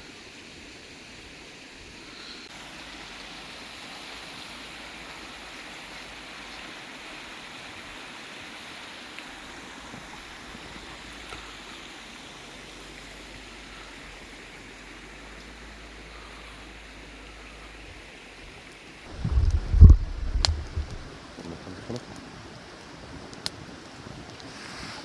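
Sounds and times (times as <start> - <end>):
flowing water rushing: 0.0 - 25.0
faint ticks: 18.5 - 24.5.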